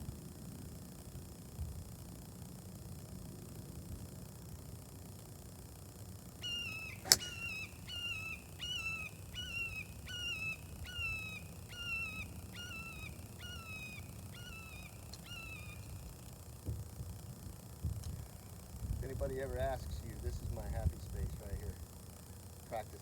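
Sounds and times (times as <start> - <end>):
bird calling short notes: 6.4 - 16.1
golf club striking ball: 6.7 - 7.6.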